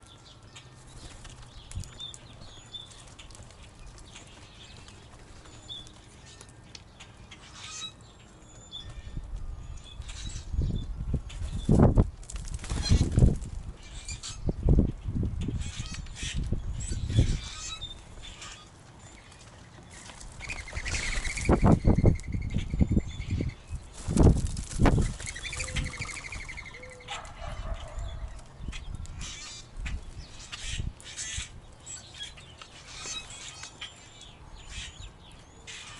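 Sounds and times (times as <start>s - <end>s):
rattling squeaky bird call: 7.3s - 8.0s, 13.8s - 14.5s, 15.5s - 18.7s, 28.7s - 29.7s, 30.3s - 34.0s.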